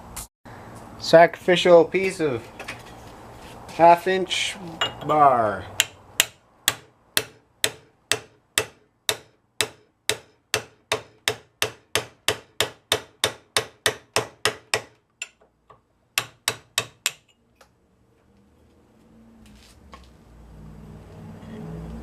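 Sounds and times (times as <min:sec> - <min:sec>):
hammer striking chisel on steel: 0:04.8 - 0:17.4.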